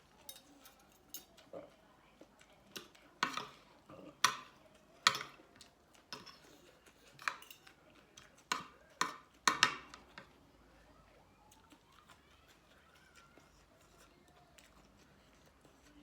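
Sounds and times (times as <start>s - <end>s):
utensils clinking against a dish: 0.0s - 1.8s, 2.6s - 10.3s.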